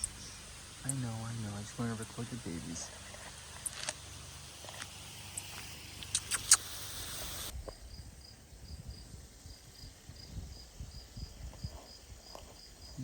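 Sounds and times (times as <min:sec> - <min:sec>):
hiss: 0:00.0 - 0:07.6
high insect chirps: 0:00.0 - 0:13.0.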